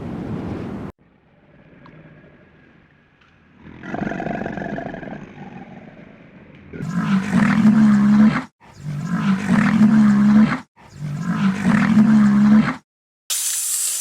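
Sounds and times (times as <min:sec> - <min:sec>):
large animal roaring: 0:01.3 - 0:12.8
sharp hiss: 0:13.3 - 0:14.0.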